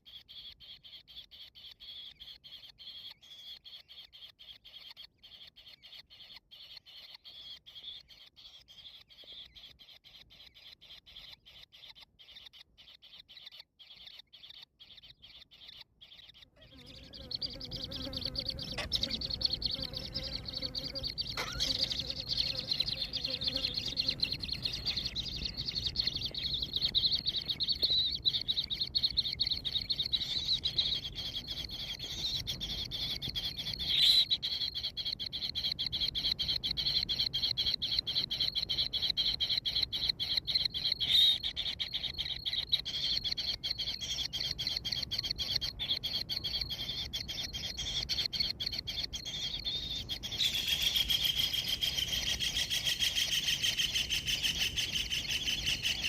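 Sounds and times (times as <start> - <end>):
bird chick chirring trill: 0.0 - 56.0.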